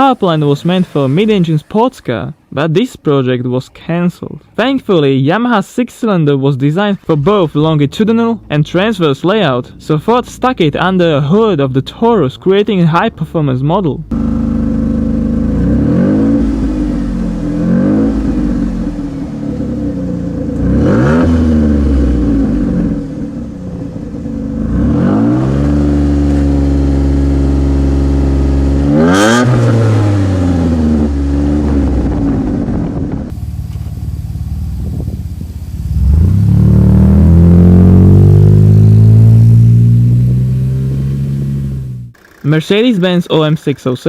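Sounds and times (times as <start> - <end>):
car engine revving: 0.0 - 2.0, 14.0 - 42.5.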